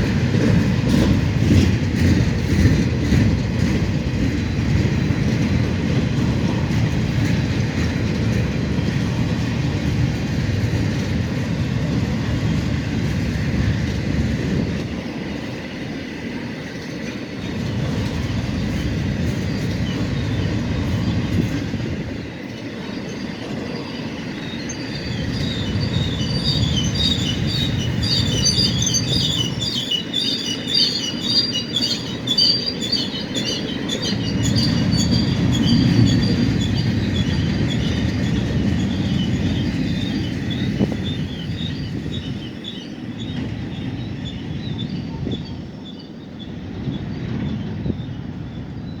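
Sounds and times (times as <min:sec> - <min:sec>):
train cars rolling past: 0:00.0 - 0:49.0
wheels squealing: 0:22.6 - 0:46.0.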